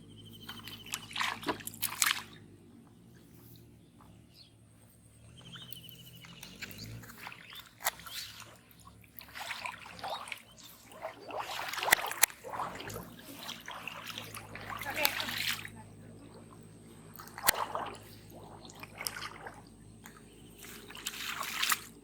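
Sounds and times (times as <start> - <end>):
water sloshing and trickling: 0.0 - 22.0
sharp splashy knocks: 9.2 - 15.7.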